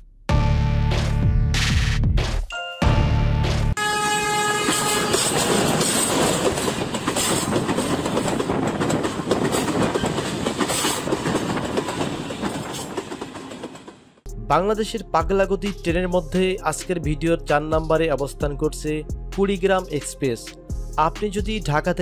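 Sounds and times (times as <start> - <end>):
train horn: 3.8 - 6.2
train wheels rushing on rails: 4.6 - 14.2.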